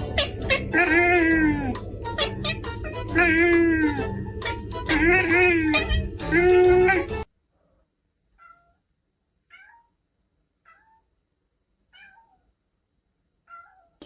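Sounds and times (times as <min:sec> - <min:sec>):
cat meowing: 0:00.0 - 0:04.2, 0:04.8 - 0:07.3, 0:08.3 - 0:08.8, 0:09.5 - 0:10.0, 0:10.6 - 0:11.1, 0:11.9 - 0:12.5, 0:13.4 - 0:14.0.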